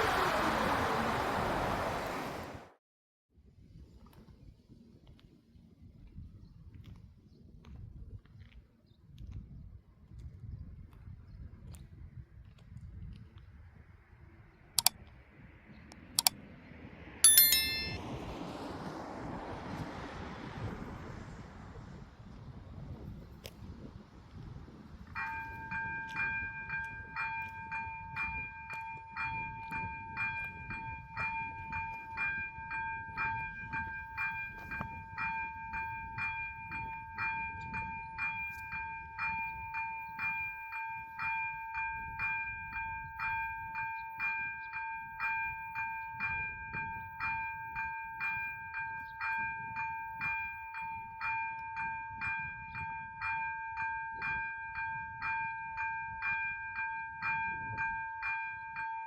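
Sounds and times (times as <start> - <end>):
level crossing warning bells: 17.2 - 18.3, 25.2 - 59.0.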